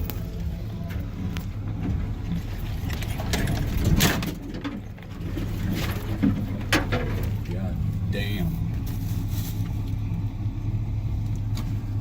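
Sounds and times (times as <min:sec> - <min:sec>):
truck engine running: 0:00.0 - 0:12.0
knocks and clatter: 0:01.0 - 0:07.5.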